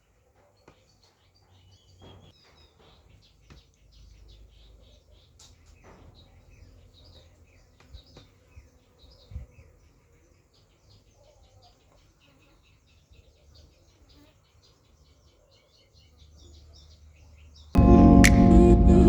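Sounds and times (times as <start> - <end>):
low background rumble: 17.8 - 19.0.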